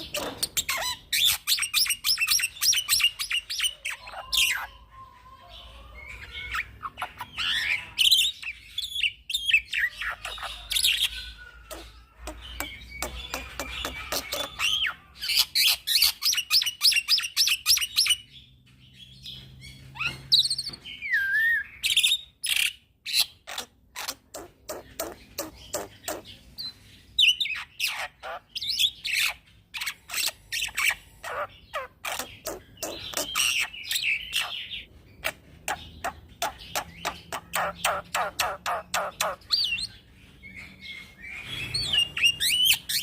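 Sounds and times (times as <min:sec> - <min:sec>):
bird singing chirps and whistles: 0:20.0 - 0:22.8.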